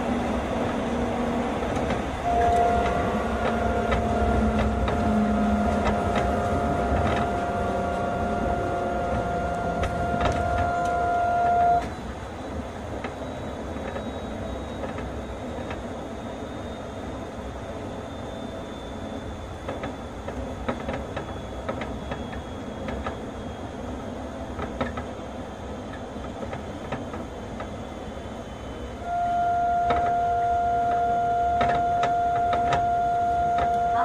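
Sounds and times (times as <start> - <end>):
train running rumble: 0.0 - 34.0
faint high whine: 2.1 - 26.4, 27.3 - 34.0
loud steady electronic tone: 2.2 - 20.6, 28.4 - 34.0.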